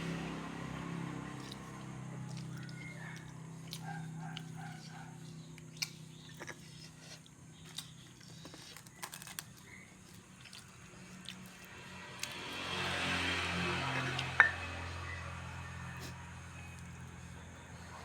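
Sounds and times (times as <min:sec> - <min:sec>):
person chewing: 0:01.2 - 0:12.7.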